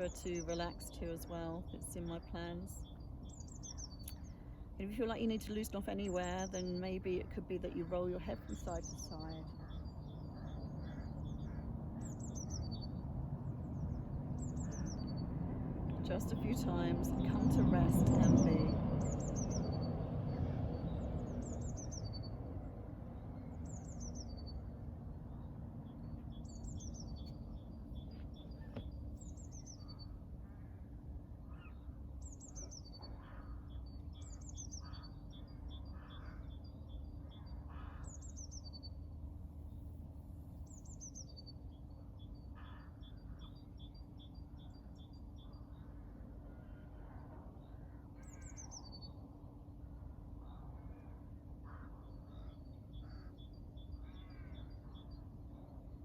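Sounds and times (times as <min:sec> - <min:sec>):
birds chirping: 0:00.0 - 0:39.9, 0:40.6 - 0:56.0
lower bird calls: 0:08.3 - 0:13.1, 0:23.3 - 0:39.1, 0:40.6 - 0:49.2, 0:49.9 - 0:55.8.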